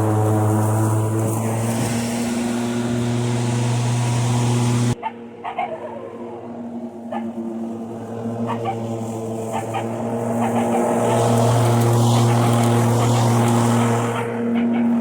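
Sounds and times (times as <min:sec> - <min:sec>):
lawn mower electric hum: 0:00.0 - 0:15.0
rushing hiss: 0:01.2 - 0:05.0.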